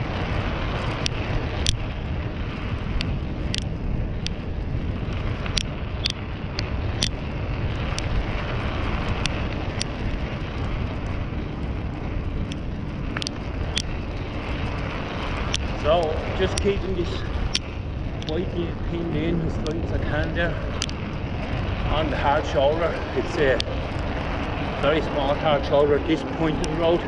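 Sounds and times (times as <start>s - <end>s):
bicycle road rumble: 0.0s - 27.0s
wind: 0.0s - 27.0s
sharp clicks: 2.9s - 4.4s, 5.4s - 7.3s, 9.1s - 10.0s, 12.4s - 14.0s, 20.7s - 21.1s.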